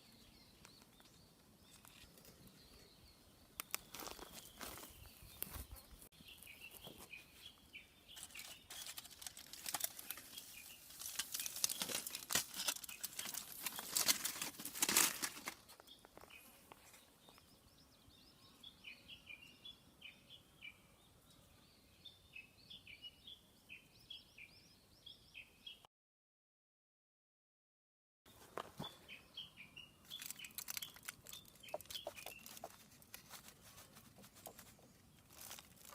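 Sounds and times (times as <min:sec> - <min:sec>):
small birds chirping: 0:00.0 - 0:25.9, 0:28.3 - 0:35.9
crackling and rustling clicks: 0:08.2 - 0:16.2, 0:30.0 - 0:35.9.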